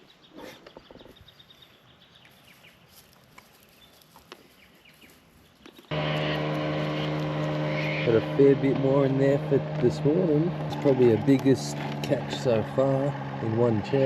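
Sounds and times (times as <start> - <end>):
boat motor running: 5.9 - 14.0.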